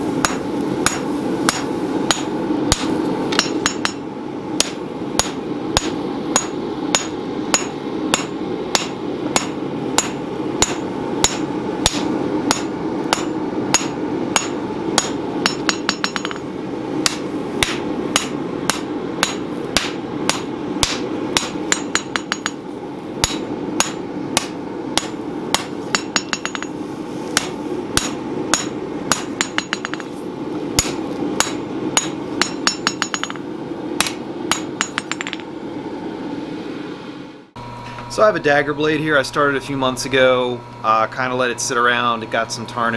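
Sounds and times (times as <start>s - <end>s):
steady hum: 0.0s - 42.9s
hammer blows on anvil: 0.2s - 4.0s, 4.6s - 22.6s, 23.2s - 26.8s, 27.4s - 30.1s, 30.8s - 35.5s.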